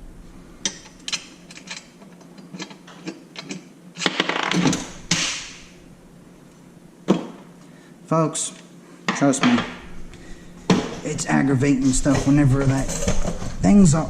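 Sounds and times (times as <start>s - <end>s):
metal hardware clinking: 0.6s - 5.3s.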